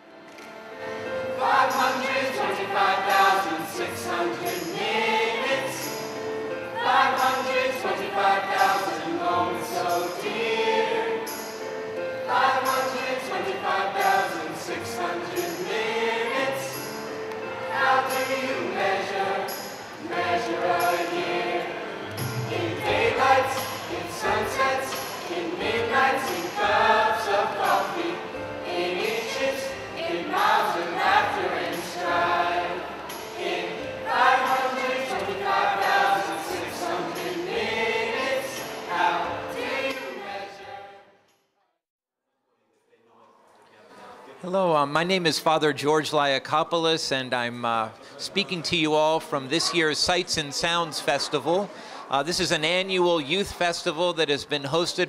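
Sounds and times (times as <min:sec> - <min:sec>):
choir singing: 0:00.9 - 0:41.2.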